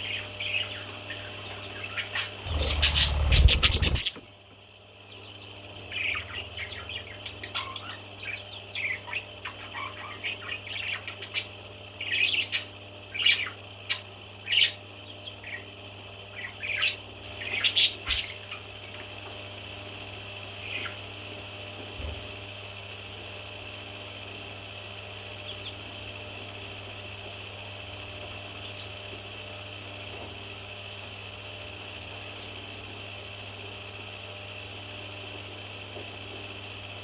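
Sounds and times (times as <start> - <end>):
steady low hum: 0.0 - 37.0
baby parrots chirping and squawking: 0.1 - 4.2, 5.9 - 14.8, 16.4 - 18.7.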